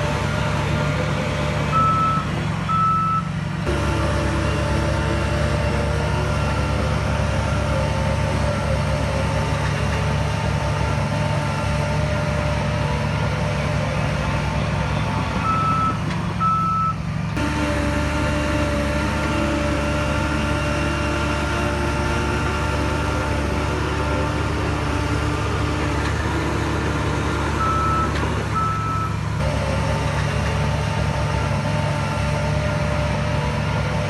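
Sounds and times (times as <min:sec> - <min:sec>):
heavy machinery diesel engine: 0:00.0 - 0:34.0
reversing alarm beeping: 0:01.7 - 0:03.3, 0:15.4 - 0:17.0, 0:27.6 - 0:29.2.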